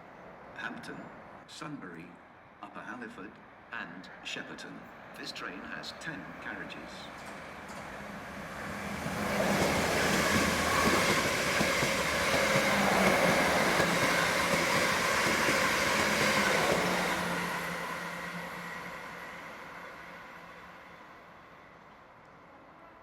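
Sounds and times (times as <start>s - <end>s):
electric train running: 7.1s - 19.1s.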